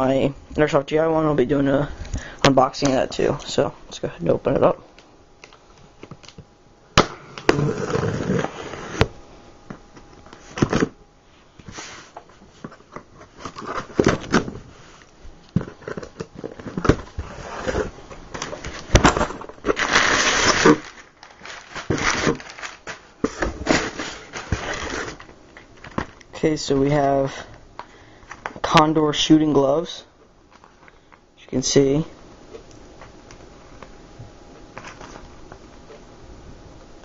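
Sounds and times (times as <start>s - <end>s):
packaging rustle: 12.1s - 26.2s
packaging crinkling: 15.5s - 26.2s.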